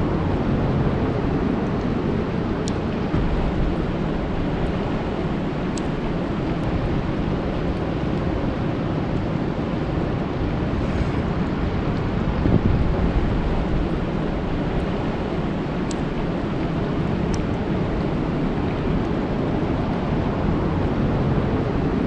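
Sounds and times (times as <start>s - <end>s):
rain falling on a lake: 0.3s - 10.7s, 11.5s - 22.0s.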